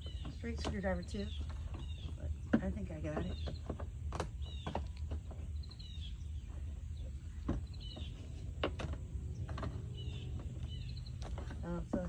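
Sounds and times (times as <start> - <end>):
songbird chirping: 0.0 - 12.0
steady low rumble: 0.0 - 12.0.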